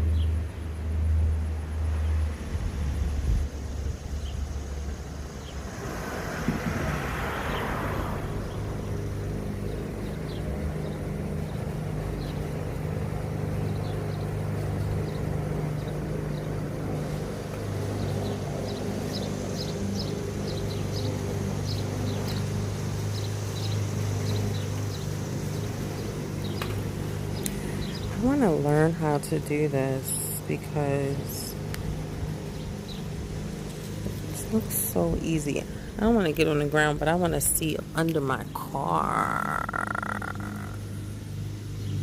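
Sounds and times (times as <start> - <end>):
vehicle engine idling: 0.0 - 42.0
faint light ticks: 27.4 - 27.6.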